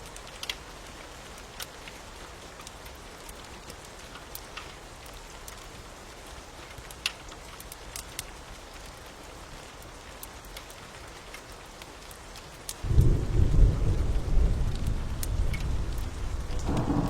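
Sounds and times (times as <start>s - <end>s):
steady rain: 0.0s - 17.0s
fire crackling: 0.1s - 17.0s
thunder rumble: 12.8s - 17.0s.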